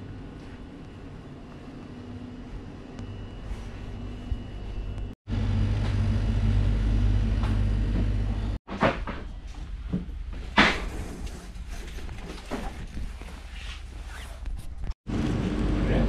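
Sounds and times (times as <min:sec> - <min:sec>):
steady low rumble: 0:03.9 - 0:08.6.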